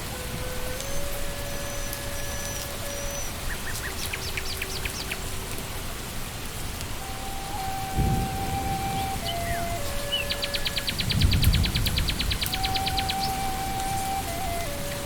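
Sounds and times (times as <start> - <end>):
rain falling on leaves: 0.0 - 15.0
bird chirps: 8.0 - 14.3.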